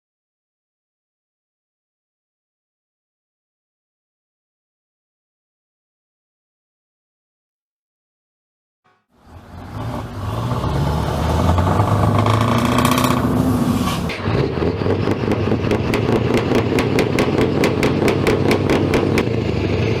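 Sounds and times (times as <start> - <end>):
truck diesel engine running: 9.2 - 20.0.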